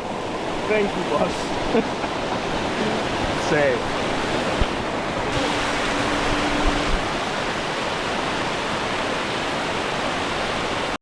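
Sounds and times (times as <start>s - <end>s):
waterfall rushing: 0.0s - 11.0s
low steady tone: 5.3s - 7.2s.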